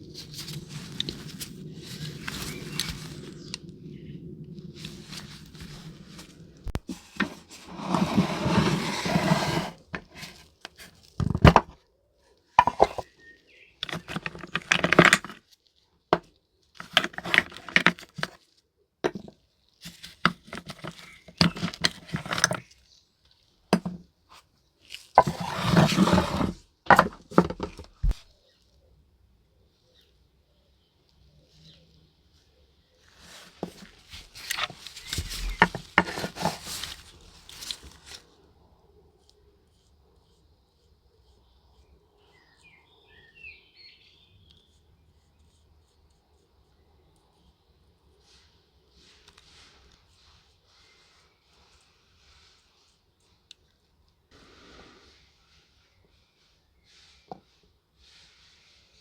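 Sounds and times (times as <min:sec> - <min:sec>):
hand tools scraping and clinking: 0:05.0 - 0:11.8, 0:12.6 - 0:13.1, 0:13.8 - 0:15.4, 0:16.8 - 0:18.4, 0:19.1 - 0:22.7, 0:25.0 - 0:28.2, 0:33.2 - 0:38.2.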